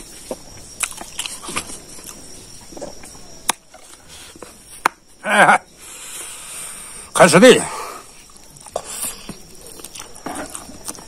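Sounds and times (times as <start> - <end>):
wet chewing and lip smacks: 0.0 - 4.6, 8.1 - 11.0.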